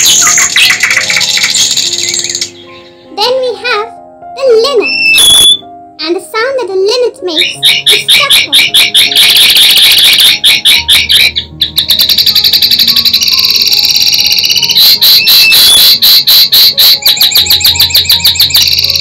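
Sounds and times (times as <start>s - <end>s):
bird singing twittering song: 0.0s - 3.1s, 4.8s - 5.6s, 7.4s - 15.9s
soft background music: 0.0s - 19.0s.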